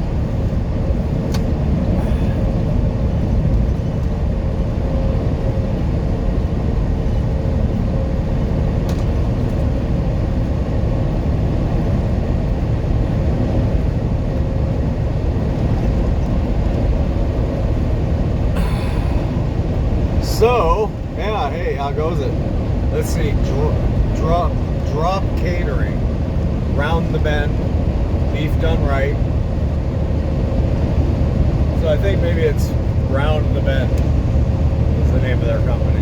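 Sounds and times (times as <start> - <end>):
truck cab road rumble: 0.0 - 36.0
faint steady hum: 18.4 - 24.2.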